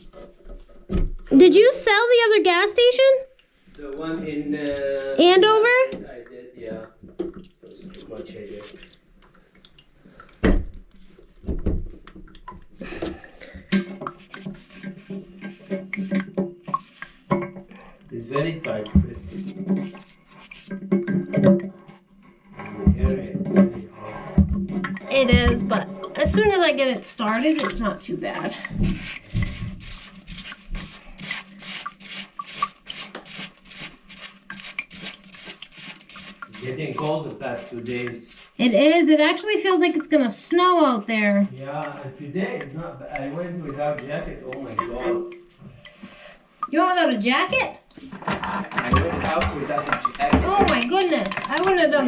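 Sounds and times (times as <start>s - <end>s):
tools knocking on plumbing fittings: 20.7s - 21.8s, 22.8s - 26.7s, 48.3s - 51.9s
quick repeated scraping strokes: 28.8s - 38.6s.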